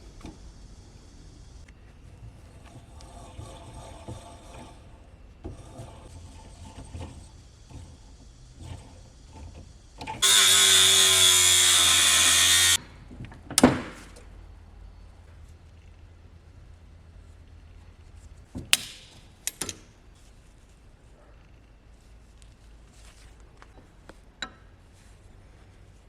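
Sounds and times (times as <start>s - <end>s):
power tool running: 10.2s - 12.8s.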